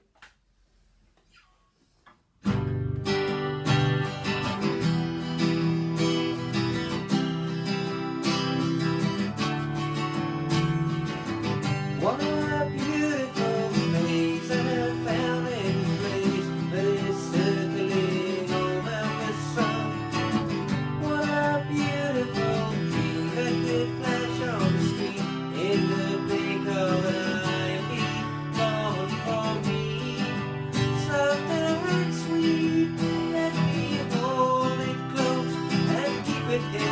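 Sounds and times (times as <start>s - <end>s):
acoustic guitar strumming chords: 2.4s - 36.9s
person singing: 11.9s - 36.9s.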